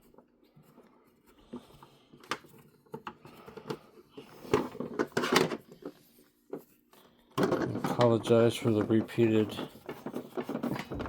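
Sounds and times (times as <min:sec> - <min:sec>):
handling noise: 0:07.4 - 0:11.0.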